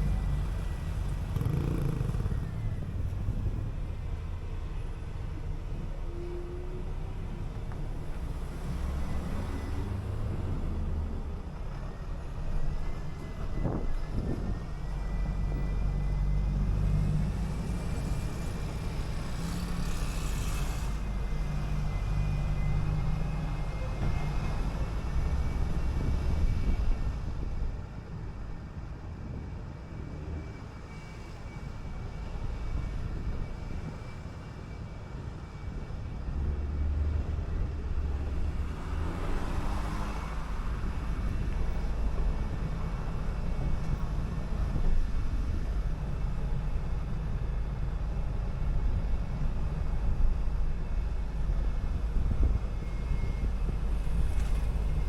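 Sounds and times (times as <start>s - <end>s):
bus engine rumble: 0.0s - 55.0s
road noise: 0.0s - 55.0s.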